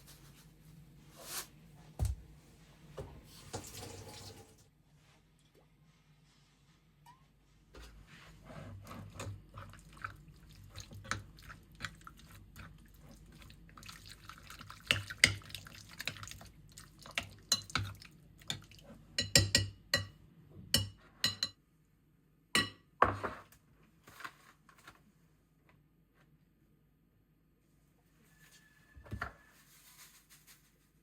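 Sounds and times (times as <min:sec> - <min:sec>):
dishes and utensils clinking: 0:19.2 - 0:21.6.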